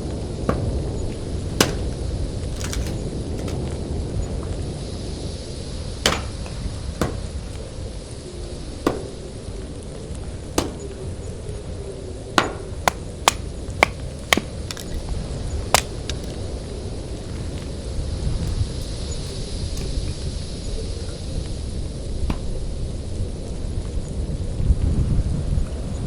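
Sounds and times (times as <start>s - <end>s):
low rumble of wind: 0.0s - 26.0s
sharp knocks: 0.5s - 3.6s, 6.0s - 7.7s, 8.8s - 9.7s, 10.4s - 11.1s, 12.4s - 15.0s, 15.7s - 16.4s.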